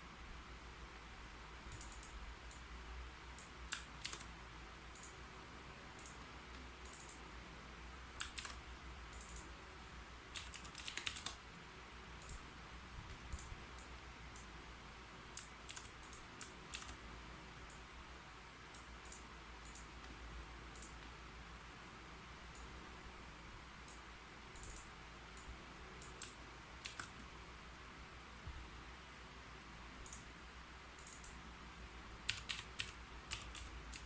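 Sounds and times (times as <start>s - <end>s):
faint low hum: 0.0s - 34.0s
keyboard typing clicks: 1.7s - 2.7s, 3.4s - 4.3s, 4.9s - 5.2s, 6.0s - 7.2s, 8.2s - 9.5s, 10.3s - 11.4s, 12.2s - 12.4s, 13.1s - 14.5s, 15.4s - 17.0s, 18.7s - 21.1s, 24.6s - 27.3s, 30.0s - 30.3s, 31.0s - 31.4s, 32.3s - 34.0s.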